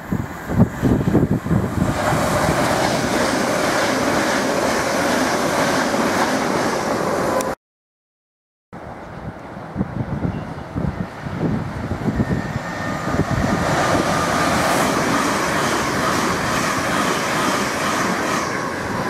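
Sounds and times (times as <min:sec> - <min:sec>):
wind rumbling on microphone: 0:00.0 - 0:04.6, 0:08.8 - 0:17.2
train wheels rushing on rail: 0:00.0 - 0:07.6, 0:09.1 - 0:19.0.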